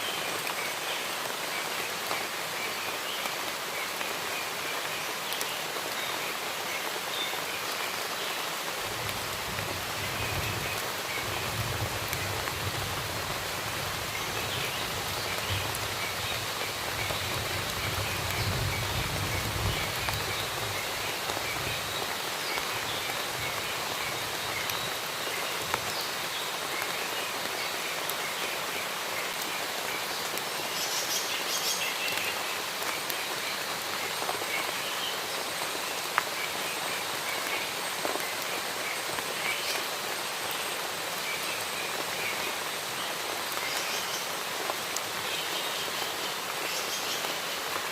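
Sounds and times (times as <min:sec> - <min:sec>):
rain falling in forest: 0:00.0 - 0:47.9.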